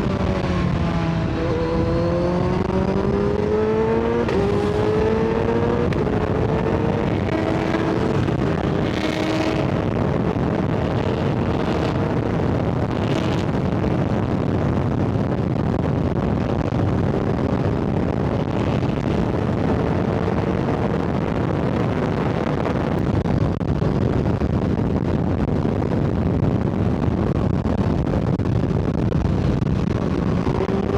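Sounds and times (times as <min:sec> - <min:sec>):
motorcycle engine running: 0:00.0 - 0:23.0
wind rush over microphone: 0:00.0 - 0:30.9.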